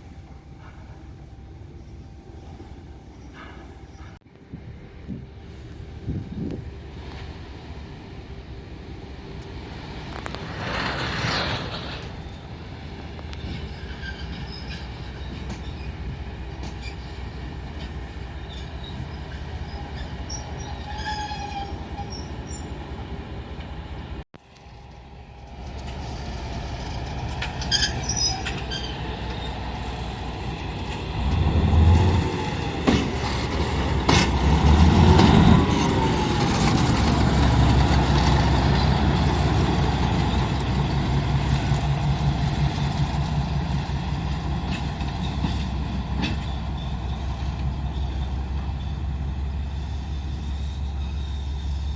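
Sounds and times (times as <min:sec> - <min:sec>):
wheels squealing on rails: 0:00.0 - 0:04.2, 0:05.1 - 0:51.9
diesel engine rumble: 0:00.0 - 0:20.5, 0:22.9 - 0:51.9.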